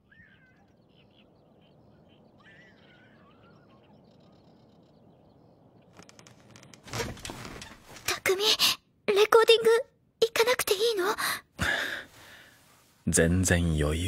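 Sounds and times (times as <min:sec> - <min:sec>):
birds chirping: 0:00.0 - 0:08.5.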